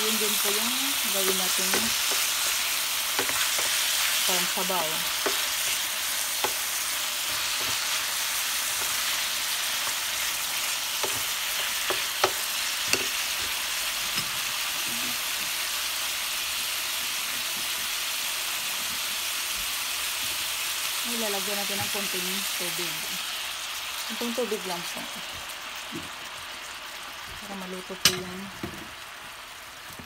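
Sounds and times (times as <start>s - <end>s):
chicken sizzling in a pan: 0.0s - 30.0s.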